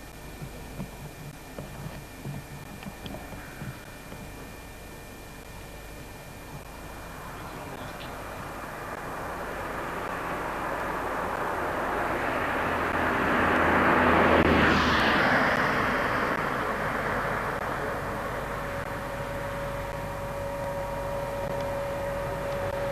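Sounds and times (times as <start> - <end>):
diesel locomotive passing: 6.5 - 22.9.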